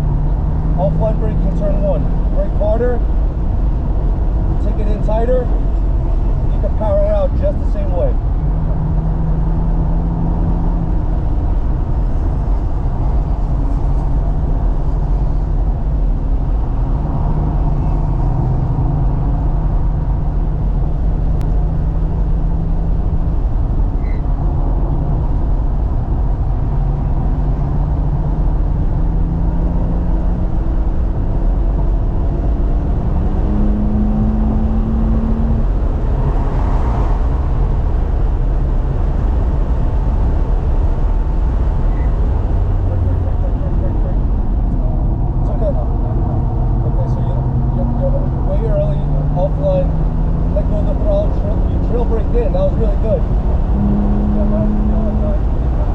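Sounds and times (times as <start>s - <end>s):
tyre and road noise rumble: 0.0s - 55.9s
car engine revving through gears: 26.2s - 38.3s, 39.0s - 55.9s.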